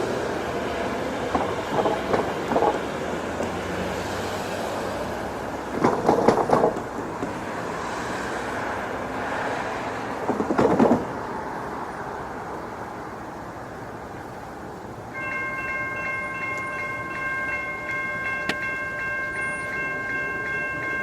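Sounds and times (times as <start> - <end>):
passenger train rumble: 0.0 - 21.0
train wheel clatter: 1.1 - 3.6, 5.6 - 7.5, 10.1 - 11.2.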